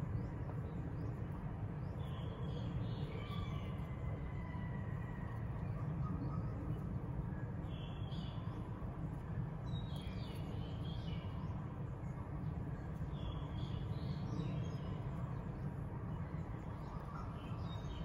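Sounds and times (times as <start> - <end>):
small birds chirping: 9.7 - 12.0.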